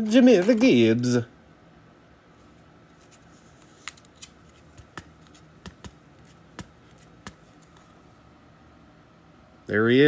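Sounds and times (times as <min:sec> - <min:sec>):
trading cards flicked by hand: 0:03.0 - 0:08.0.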